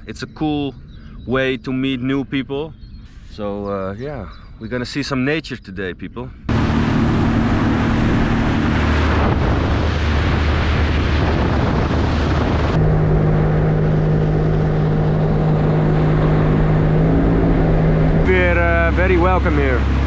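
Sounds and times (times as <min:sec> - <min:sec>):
wind: 0:00.0 - 0:20.0
jet ski engine running: 0:06.5 - 0:20.0
water rushing: 0:06.5 - 0:20.0.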